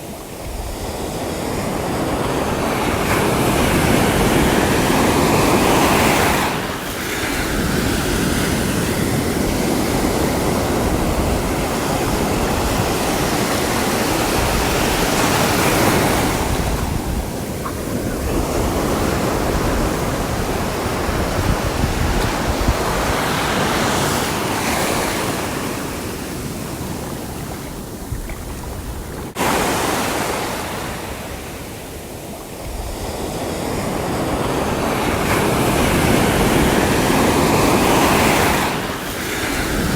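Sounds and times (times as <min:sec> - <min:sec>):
sea surf washing onto shore: 0:00.0 - 0:39.9.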